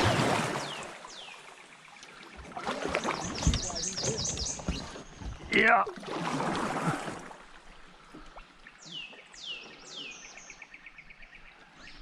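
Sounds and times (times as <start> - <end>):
songbird singing: 0.6 - 5.9, 8.2 - 12.0.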